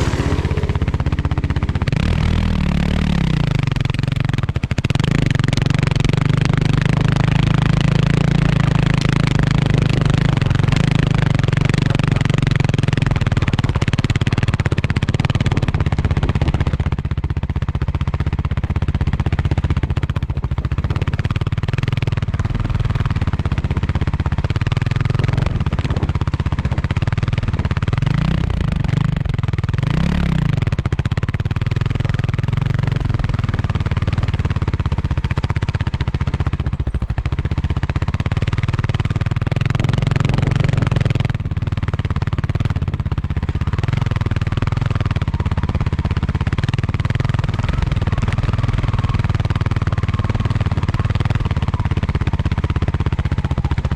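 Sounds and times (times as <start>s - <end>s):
noisy rush: 0.0s - 7.2s, 32.0s - 49.3s
motorcycle engine running: 0.0s - 53.9s.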